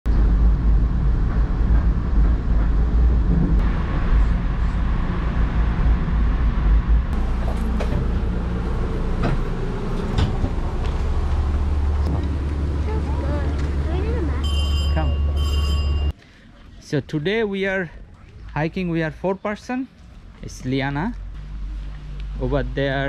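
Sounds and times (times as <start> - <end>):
train rumbling: 0.0 - 16.1
sharp knocks and clunks: 9.1 - 11.0.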